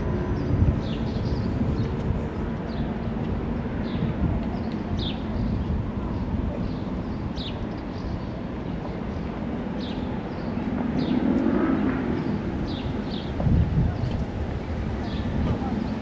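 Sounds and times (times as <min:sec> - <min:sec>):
low street rumble: 0:00.0 - 0:16.0.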